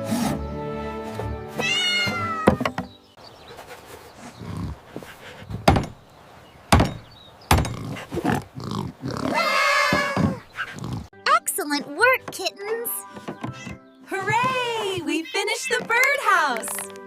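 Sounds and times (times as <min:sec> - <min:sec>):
gentle background music: 0:00.0 - 0:03.4, 0:11.2 - 0:17.0
cat meowing: 0:01.6 - 0:02.6
hammer knocking on wood: 0:05.5 - 0:06.0, 0:06.7 - 0:07.8.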